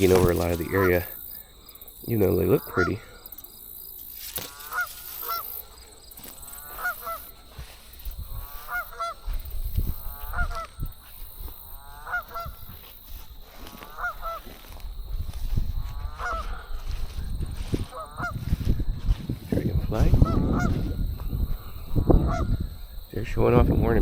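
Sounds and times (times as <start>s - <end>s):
goose honking: 0.0s - 1.2s, 2.5s - 3.2s, 4.4s - 5.8s, 6.4s - 7.6s, 8.4s - 9.3s, 10.1s - 10.8s, 11.8s - 12.7s, 13.7s - 14.6s, 15.8s - 16.7s, 17.8s - 18.5s, 20.2s - 20.9s, 21.6s - 22.6s.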